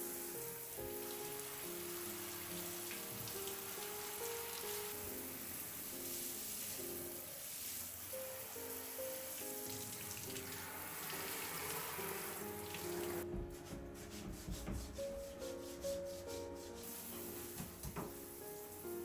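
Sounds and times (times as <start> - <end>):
running water splashing: 0.0 - 13.2
soft background music: 0.0 - 19.0
rubbing scrubbing sound: 10.6 - 17.8.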